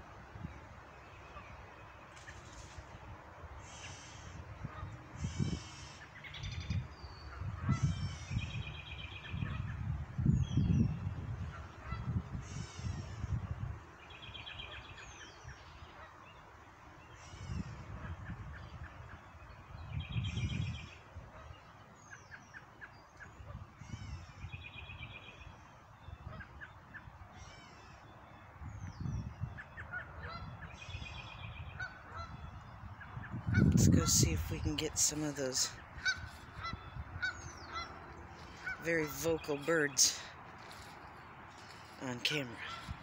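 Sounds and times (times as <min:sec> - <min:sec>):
songbird calls: 0:03.6 - 0:11.0, 0:14.0 - 0:43.0
geese honking: 0:29.6 - 0:30.8, 0:31.6 - 0:43.0.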